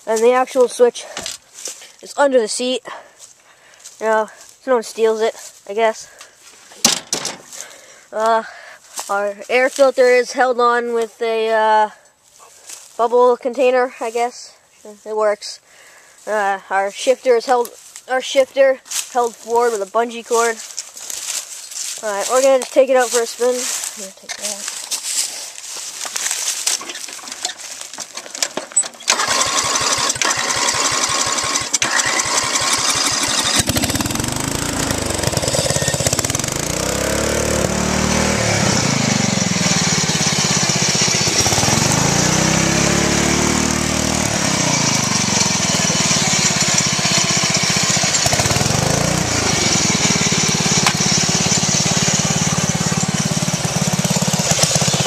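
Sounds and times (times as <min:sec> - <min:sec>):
riding lawn mower engine revving: 0:18.9 - 0:55.0.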